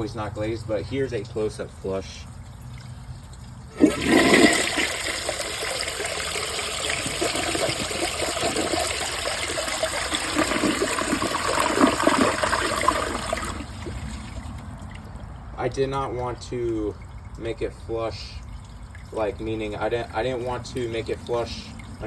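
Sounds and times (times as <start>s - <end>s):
toilet flushing: 3.7s - 14.6s.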